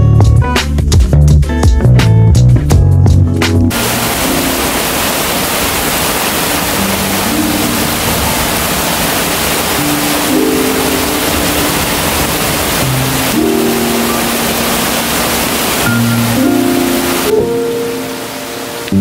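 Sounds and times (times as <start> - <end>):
soft music with low held notes: 0.0 - 5.0, 9.8 - 19.0
heavy rain falling: 3.7 - 19.0.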